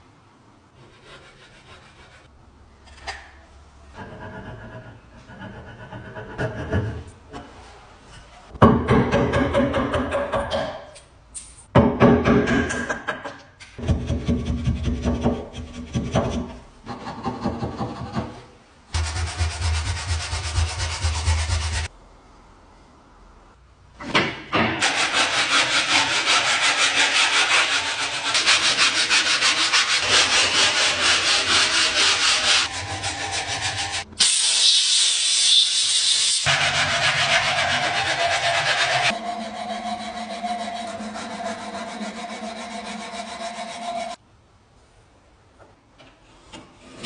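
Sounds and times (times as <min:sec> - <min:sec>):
sanding metal parts: 0:19.0 - 0:21.9, 0:24.8 - 0:44.2.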